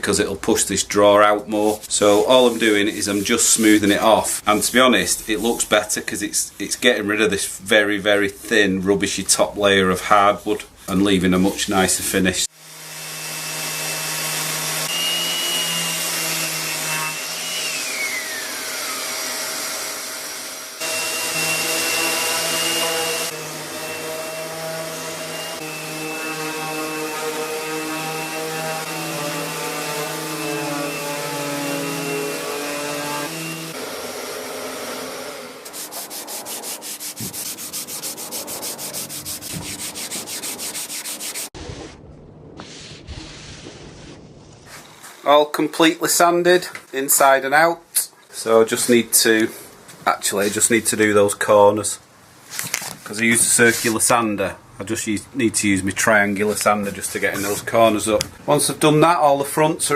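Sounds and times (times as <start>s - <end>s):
sandpaper rasping on wood: 1.7s - 6.0s, 20.8s - 33.8s, 35.6s - 41.6s, 53.4s - 54.1s, 56.4s - 57.7s
electric sander whining: 12.5s - 35.7s.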